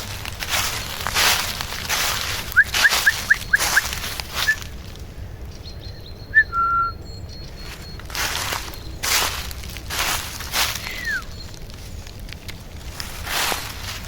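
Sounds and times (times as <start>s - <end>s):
footsteps crunching dry leaves: 0.0s - 5.2s, 7.5s - 14.0s
bird whistle: 2.5s - 4.7s, 5.7s - 9.0s, 10.8s - 11.5s
small bird chirping: 2.5s - 4.8s, 5.4s - 9.5s, 10.5s - 12.0s.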